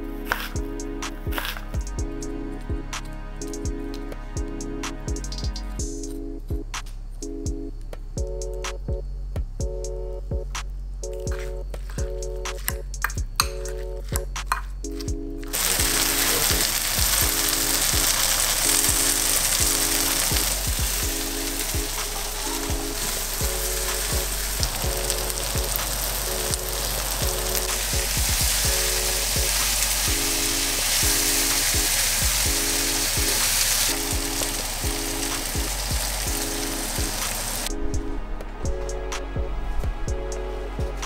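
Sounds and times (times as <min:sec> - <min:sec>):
background music with beat: 0:00.0 - 0:41.0
food sizzling in a frying pan: 0:15.5 - 0:37.7.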